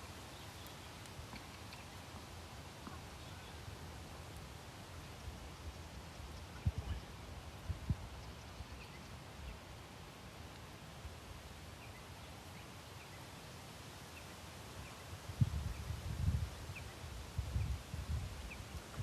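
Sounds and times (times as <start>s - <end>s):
birds chirping: 2.8s - 3.8s, 4.9s - 9.8s
wind buffeting microphone: 6.2s - 8.9s, 15.2s - 19.0s.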